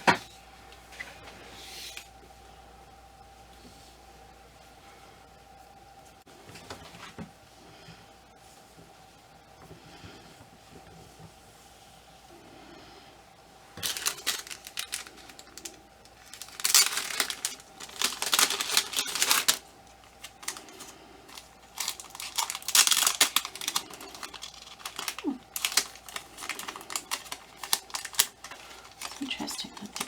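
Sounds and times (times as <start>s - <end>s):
clicking and rustling of doll parts: 13.8s - 30.0s.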